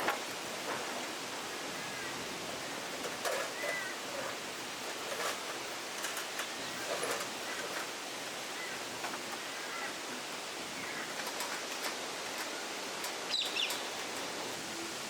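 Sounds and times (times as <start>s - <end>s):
outdoor ambience hiss: 0.0s - 15.0s
birds chirping and calling: 1.7s - 4.4s, 10.7s - 11.9s, 13.2s - 14.2s.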